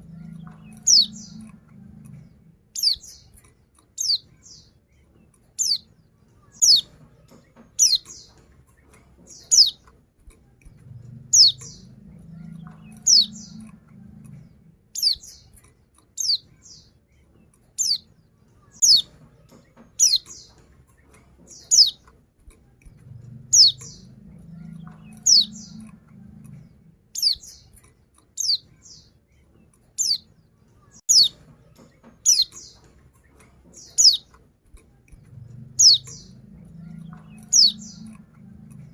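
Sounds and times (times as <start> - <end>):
sharp high bird calls: 0.4 - 1.5, 2.8 - 3.2, 18.8 - 19.1, 31.1 - 31.4, 33.8 - 34.3.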